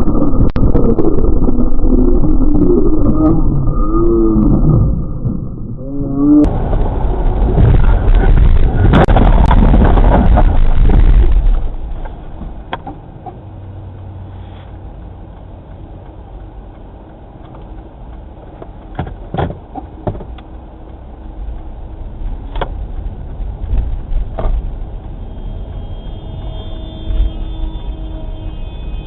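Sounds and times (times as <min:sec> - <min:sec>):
car road and engine rumble: 0:00.0 - 0:29.0
sharp clicks and knocks: 0:07.4 - 0:14.1, 0:15.3 - 0:25.1.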